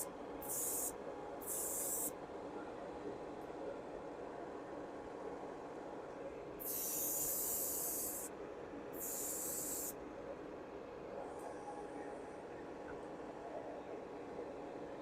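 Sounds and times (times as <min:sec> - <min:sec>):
airbrush spraying hiss: 0:00.0 - 0:02.1, 0:06.6 - 0:08.3, 0:09.0 - 0:10.0.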